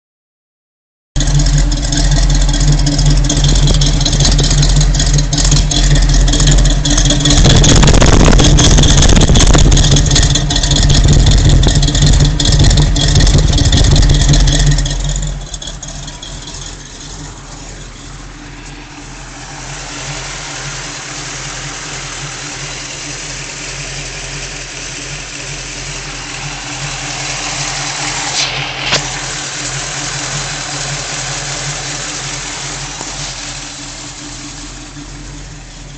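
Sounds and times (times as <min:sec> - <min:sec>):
engine idling roughly: 0:01.2 - 0:35.9.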